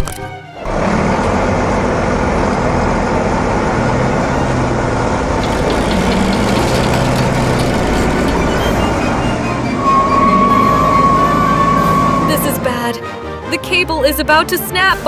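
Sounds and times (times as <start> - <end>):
heavy truck engine humming: 0.4 - 13.8.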